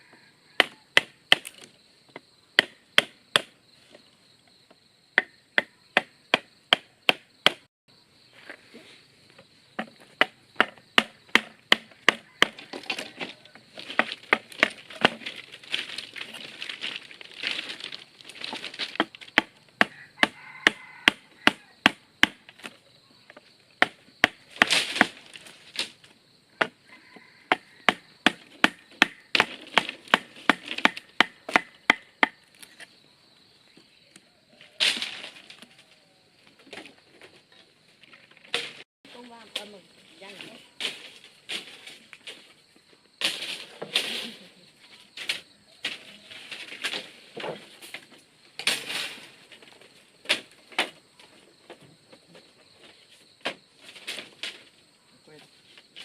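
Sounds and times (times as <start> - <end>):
blade chopping into wood: 0.6 - 1.7, 5.2 - 7.7, 9.8 - 13.1, 13.8 - 22.7, 27.9 - 32.4.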